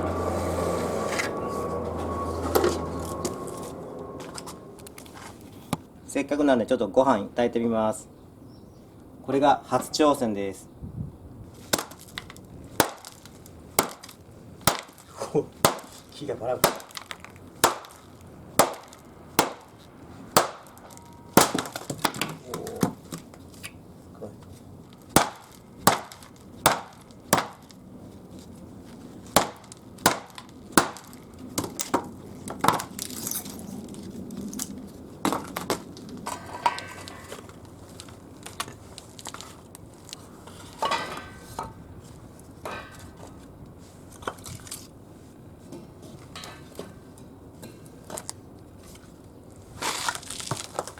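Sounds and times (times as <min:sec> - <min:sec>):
firewood cracking and knocking: 0:11.6 - 0:23.8, 0:24.4 - 0:41.8, 0:49.8 - 0:50.9.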